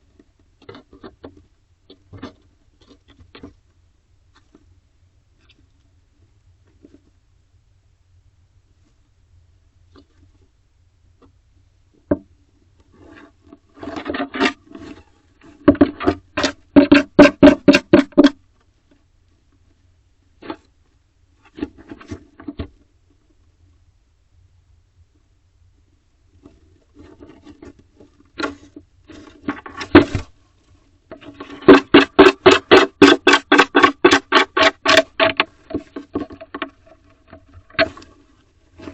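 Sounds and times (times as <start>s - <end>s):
owl scratching on wooden wall: 13.0s - 18.4s, 26.4s - 30.4s, 31.1s - 38.9s
owl scratching wooden wall: 13.0s - 18.4s, 26.4s - 30.4s, 31.1s - 38.9s.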